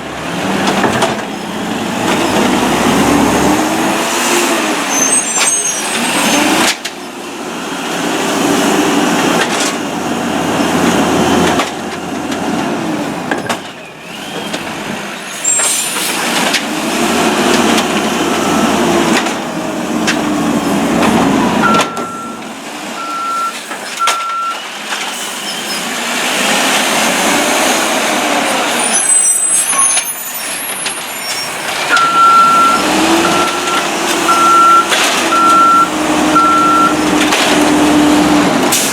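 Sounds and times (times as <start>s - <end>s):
garbage truck engine revving: 0.0s - 23.3s, 25.7s - 29.4s, 30.6s - 38.9s
reversing beeper: 21.6s - 22.4s, 31.2s - 37.0s.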